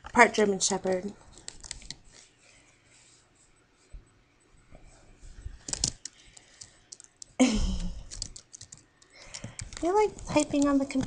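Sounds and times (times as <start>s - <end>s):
keyboard keys clicking: 5.6s - 7.4s, 8.0s - 11.0s.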